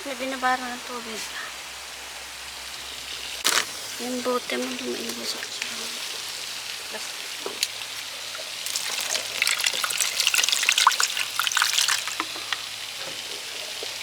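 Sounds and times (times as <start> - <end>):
water trickling and pouring: 3.8 - 14.0.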